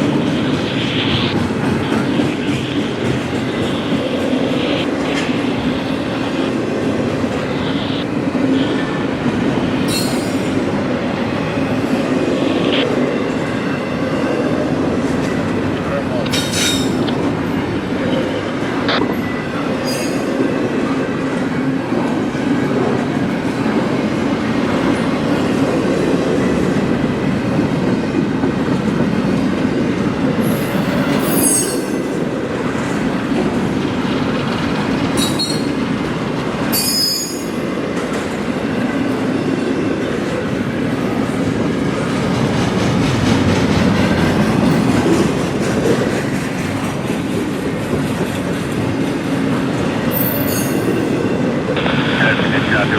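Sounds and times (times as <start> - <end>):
train wheels rumbling on rails: 0.0 - 52.9
high-pitched wheel squeals: 35.2 - 35.8, 36.7 - 37.5.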